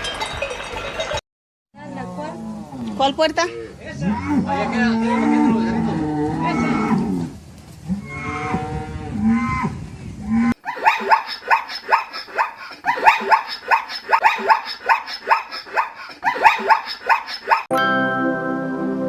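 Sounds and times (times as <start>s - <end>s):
cow mooing: 3.9s - 10.6s
small animal high calls: 10.6s - 17.7s.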